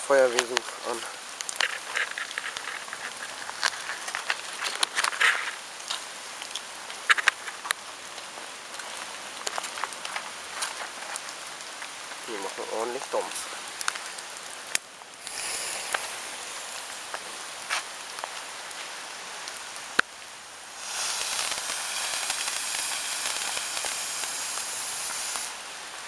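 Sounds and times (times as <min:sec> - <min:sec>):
firework fountain hissing: 0:00.0 - 0:02.9, 0:12.2 - 0:26.0
sharp firework cracks: 0:13.6 - 0:18.8, 0:19.4 - 0:26.0.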